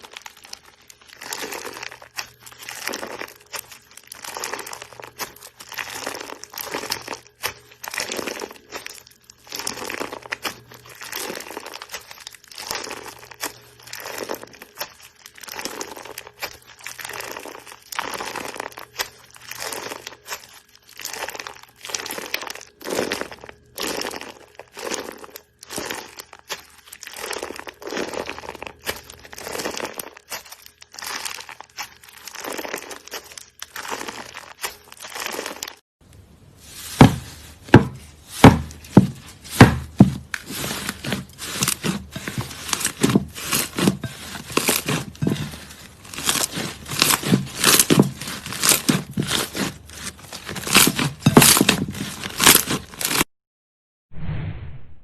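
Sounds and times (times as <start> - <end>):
crunchy slime crackling: 0.0 - 53.3.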